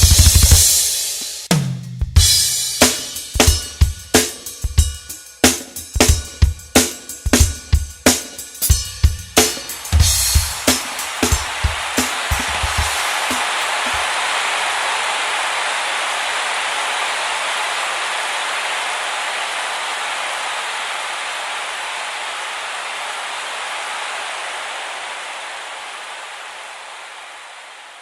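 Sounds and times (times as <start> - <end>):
heavy rain pouring: 9.7 - 28.0.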